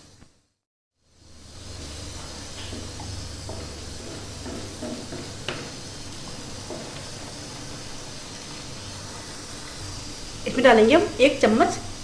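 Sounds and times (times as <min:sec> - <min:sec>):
masala sizzling in oil: 0:00.0 - 0:12.0
wooden spatula scraping: 0:01.8 - 0:07.4
spatula knocking pan: 0:02.6 - 0:07.1.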